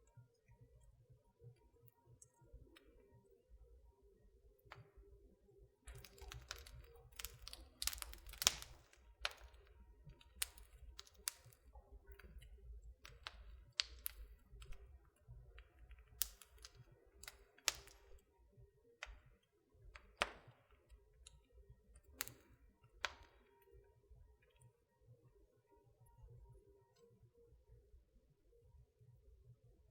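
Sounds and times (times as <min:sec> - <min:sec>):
wood fire crackling: 0:05.9 - 0:18.3, 0:19.0 - 0:23.6.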